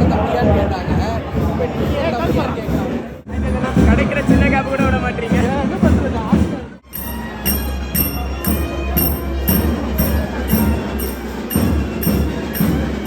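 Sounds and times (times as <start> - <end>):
deep drumming: 0.0 - 13.0
metallic clinking beat: 6.8 - 13.0.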